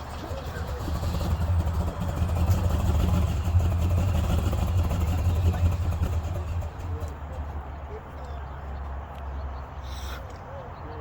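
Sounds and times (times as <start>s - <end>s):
car engine rumbling past: 0.0s - 8.6s.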